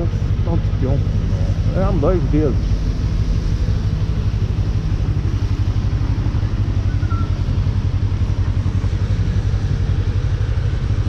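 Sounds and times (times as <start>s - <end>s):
motorcycle engine running steadily: 0.0s - 11.0s.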